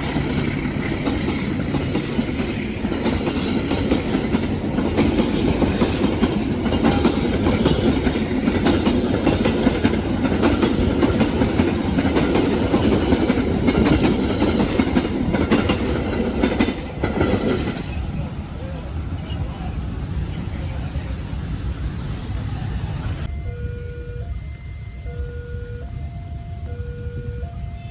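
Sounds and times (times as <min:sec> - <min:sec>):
wheels clacking over rail joints: 0:00.0 - 0:18.6
train carriages rumbling past: 0:00.0 - 0:27.9.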